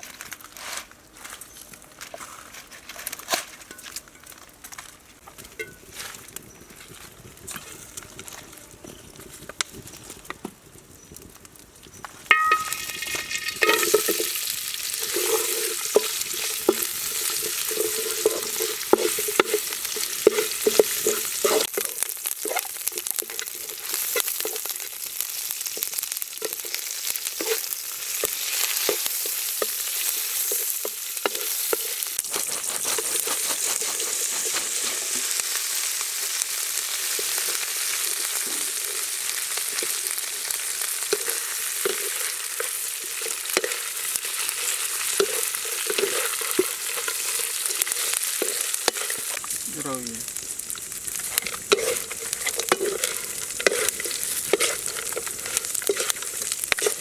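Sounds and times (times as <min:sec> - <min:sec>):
food sizzling in a pan: 0:12.2 - 0:57.0
stirring clicks: 0:41.1 - 0:49.6, 0:51.2 - 0:57.0.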